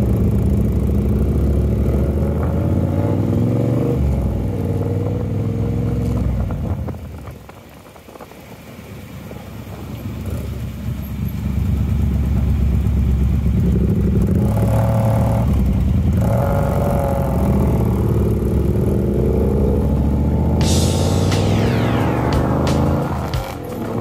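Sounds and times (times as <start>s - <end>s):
motorcycle engine accelerating: 0.0s - 7.7s, 9.7s - 24.0s
music: 20.5s - 24.0s.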